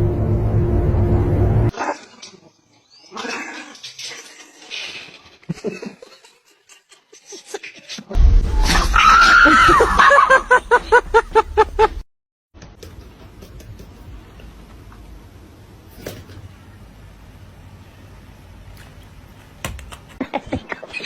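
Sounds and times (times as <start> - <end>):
loud low rumble: 0.0 - 1.7.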